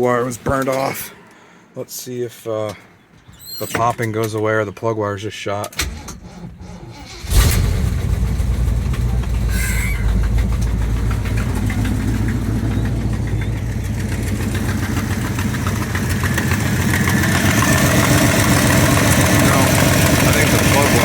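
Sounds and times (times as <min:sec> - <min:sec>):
engine idling with popping misfire: 0:05.9 - 0:21.0.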